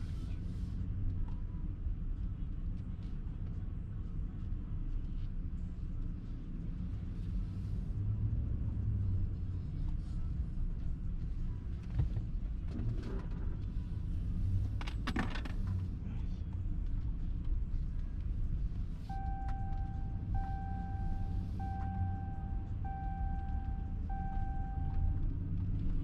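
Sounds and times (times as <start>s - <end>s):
car cabin rumble: 9.7s - 26.0s.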